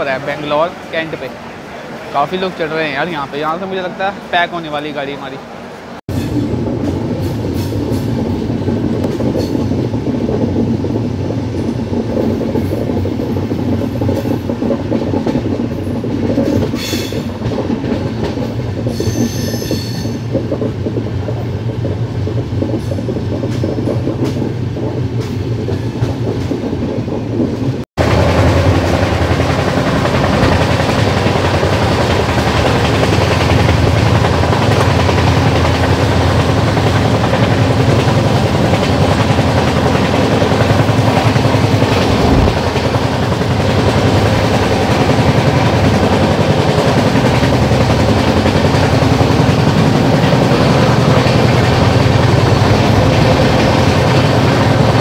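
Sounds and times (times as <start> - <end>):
train wheels rumbling on track: 0.0 - 55.0
high wheel squeal: 18.9 - 20.3.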